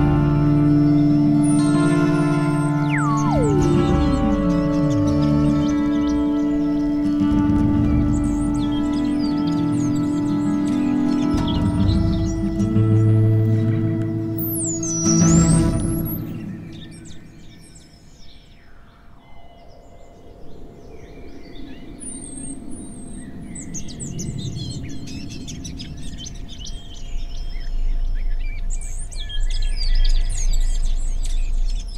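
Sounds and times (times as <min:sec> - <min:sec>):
low rumble: 0:00.0 - 0:09.3
birds chirping and singing: 0:00.0 - 0:31.9
falling sliding tone: 0:01.5 - 0:06.4.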